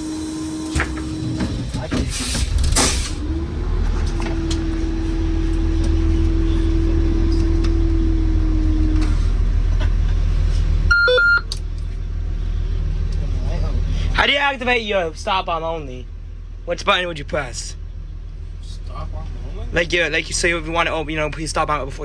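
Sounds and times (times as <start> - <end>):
bus engine idling: 0.0 - 22.0
short electronic beep: 10.9 - 11.5.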